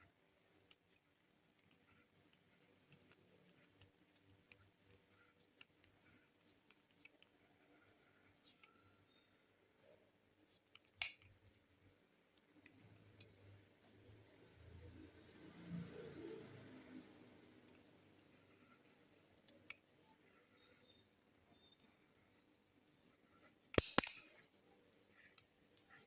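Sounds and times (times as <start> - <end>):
pencil scratching on paper: 1.7 - 11.6, 13.4 - 14.3, 17.3 - 19.4, 20.1 - 21.0, 21.6 - 22.5, 23.1 - 23.7, 24.4 - 26.0.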